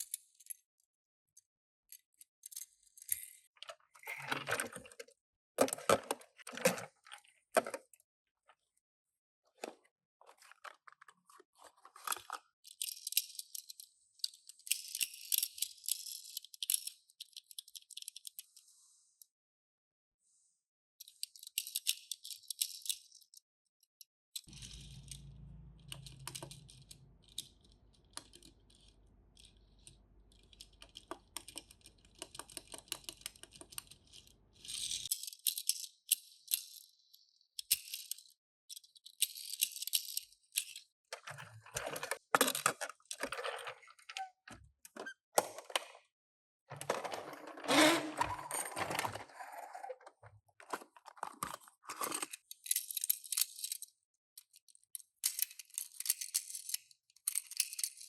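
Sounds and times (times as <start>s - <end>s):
toy cars rattling and clicking: 10.2s - 18.6s, 21.0s - 23.4s, 24.4s - 44.3s, 46.8s - 58.0s.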